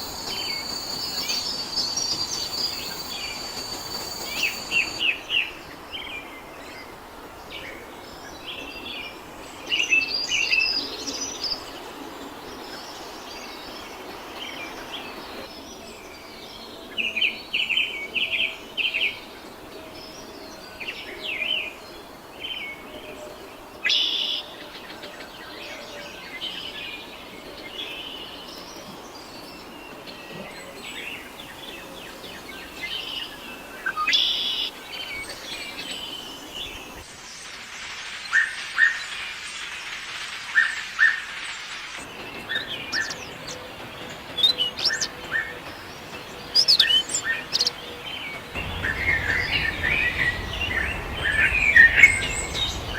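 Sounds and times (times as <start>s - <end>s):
wild birds chirping: 0.0s - 16.8s, 25.6s - 37.8s, 42.0s - 52.9s
steady outdoor hiss: 0.0s - 52.9s.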